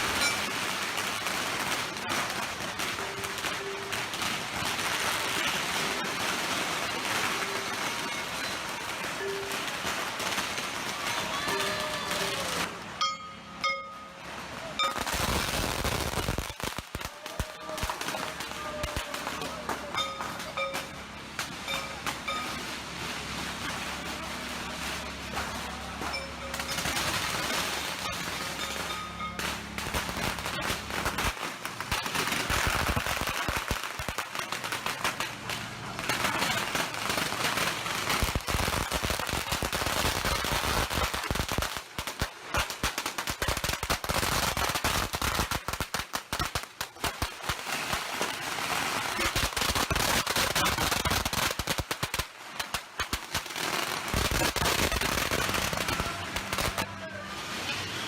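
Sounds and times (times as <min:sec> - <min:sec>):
firecrackers crackling: 0:00.0 - 0:58.0.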